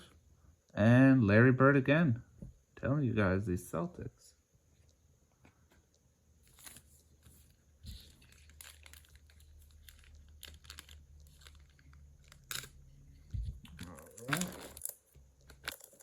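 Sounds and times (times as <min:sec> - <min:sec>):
low steady hum: 0:00.0 - 0:16.0
cellophane wrapper crinkling and tearing: 0:06.4 - 0:16.0.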